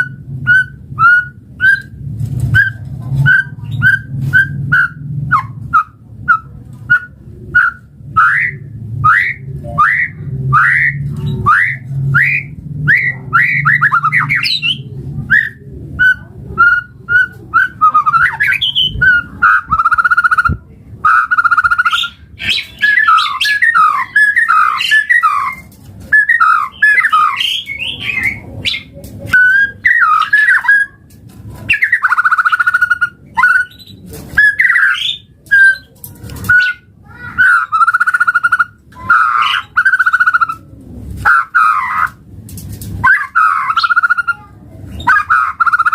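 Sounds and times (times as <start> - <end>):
bird singing whistled notes: 2.6 - 20.5, 21.1 - 30.9.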